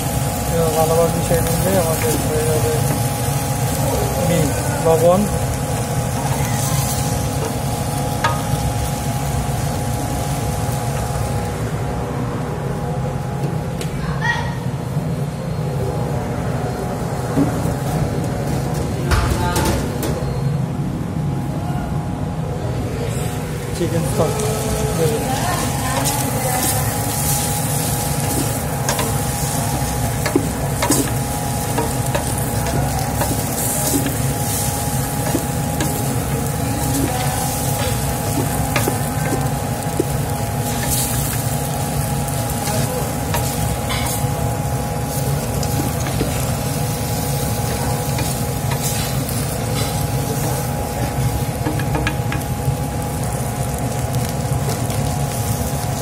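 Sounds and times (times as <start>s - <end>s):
noodles sizzling in a pan: 0.0s - 11.8s, 23.4s - 56.0s
steady hum: 0.0s - 56.0s.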